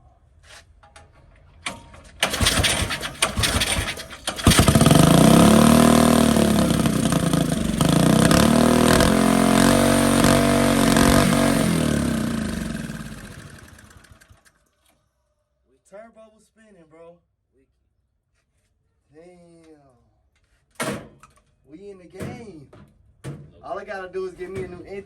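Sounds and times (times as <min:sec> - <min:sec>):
small engine revving: 0:02.2 - 0:14.5.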